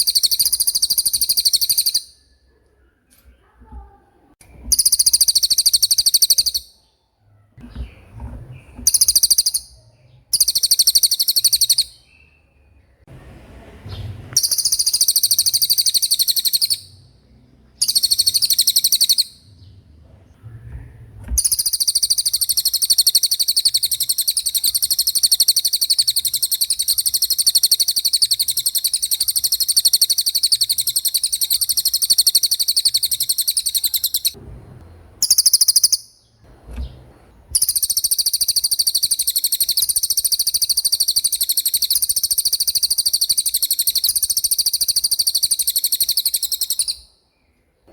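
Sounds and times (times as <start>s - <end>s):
songbird rapid trill: 0.0s - 2.3s, 4.7s - 6.8s, 8.8s - 12.2s, 14.4s - 17.1s, 17.8s - 19.5s, 21.4s - 34.4s, 35.2s - 36.2s, 37.6s - 47.1s.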